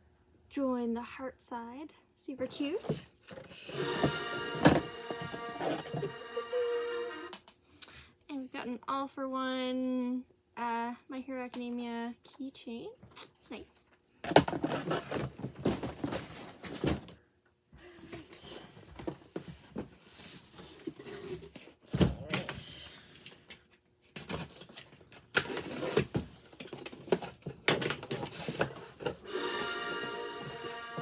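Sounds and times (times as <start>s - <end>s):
packaging rustling and crinkling: 2.6s - 6.2s, 14.3s - 17.2s, 18.2s - 29.3s.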